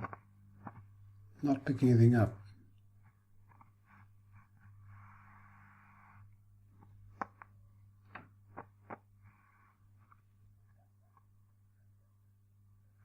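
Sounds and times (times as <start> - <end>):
radio hum and hiss: 0.0 - 7.5.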